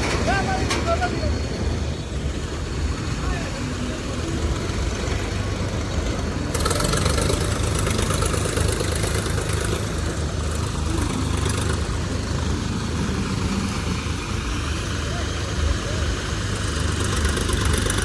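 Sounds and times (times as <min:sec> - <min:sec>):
diesel engine rumbling: 0:00.0 - 0:18.0
hiss: 0:10.4 - 0:18.0.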